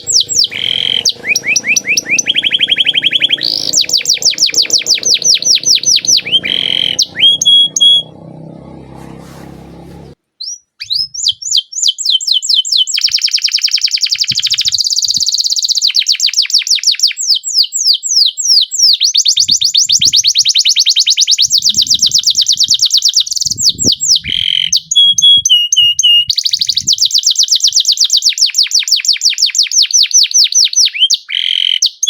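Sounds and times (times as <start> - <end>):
whistled bird notes: 0.0 - 8.2, 19.0 - 29.1
canary singing trills: 0.0 - 16.9, 19.0 - 29.0.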